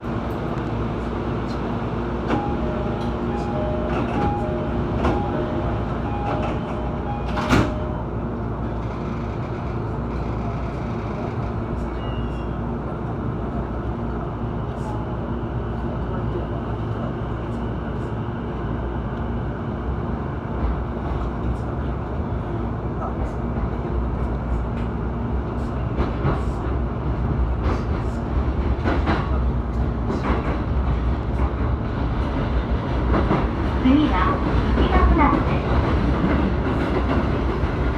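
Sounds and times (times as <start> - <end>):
train running rumble: 0.0 - 37.9
train wheels clacking: 27.6 - 37.9.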